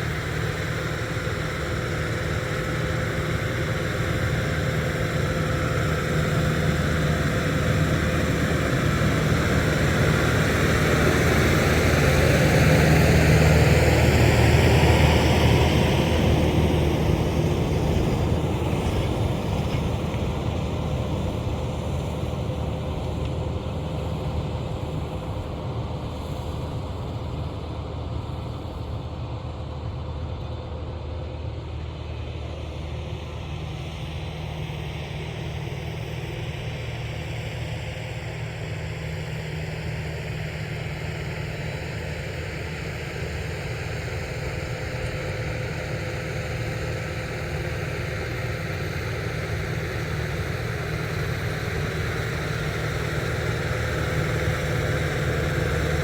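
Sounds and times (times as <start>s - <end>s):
tractor diesel engine: 0.0s - 56.0s
rotary tiller working soil: 3.5s - 28.4s.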